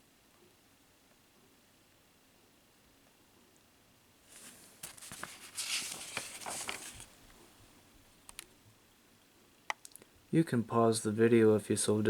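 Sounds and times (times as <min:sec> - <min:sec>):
paper rustling and pages turning: 0:04.3 - 0:07.4.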